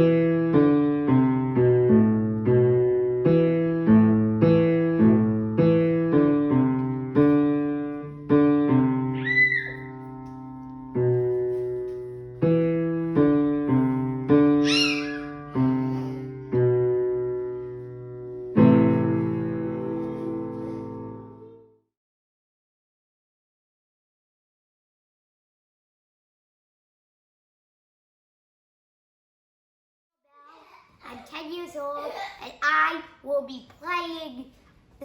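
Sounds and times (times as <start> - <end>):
simple piano tune: 0.0 - 21.8
high squeaks: 9.2 - 10.0, 14.6 - 15.4.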